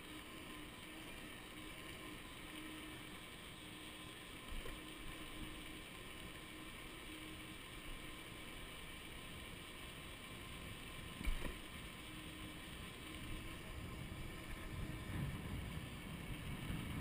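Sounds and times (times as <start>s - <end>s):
electric motor whine: 0.0s - 17.0s
wind on microphone: 13.6s - 17.0s.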